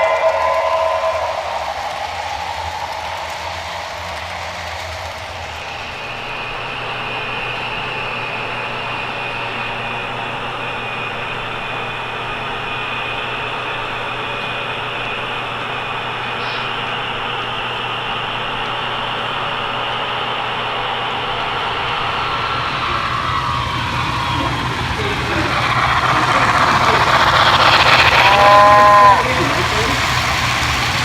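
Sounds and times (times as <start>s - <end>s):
wheels rattling on rails: 0.0s - 7.8s, 16.3s - 31.0s
electric motor whine: 16.2s - 31.0s.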